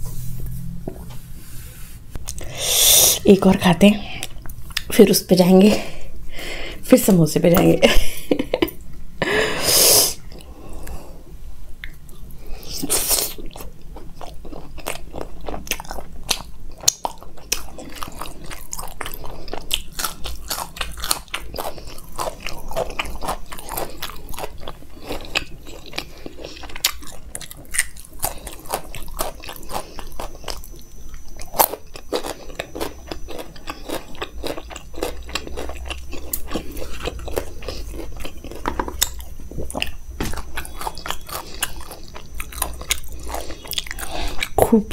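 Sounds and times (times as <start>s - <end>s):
person chewing with mouth clicks: 2.2s - 2.5s, 4.0s - 4.9s, 10.2s - 11.0s, 11.8s - 44.9s.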